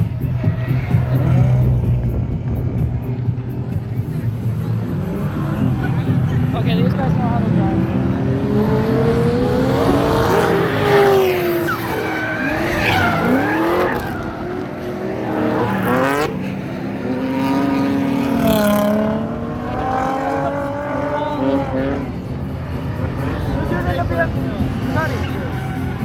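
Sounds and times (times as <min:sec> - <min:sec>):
car engines revving: 0:00.0 - 0:26.0
tyres screeching: 0:09.9 - 0:16.6, 0:24.7 - 0:26.0.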